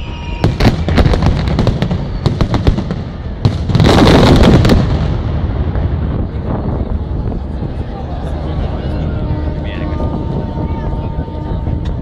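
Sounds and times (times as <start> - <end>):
fireworks banging and crackling: 0.0 - 7.8.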